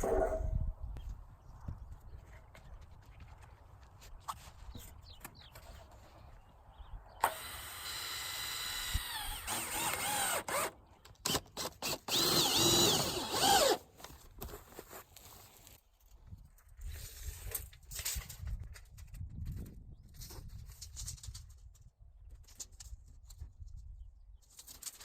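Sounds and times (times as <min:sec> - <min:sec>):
power drill running: 0:07.2 - 0:10.7, 0:11.8 - 0:13.8.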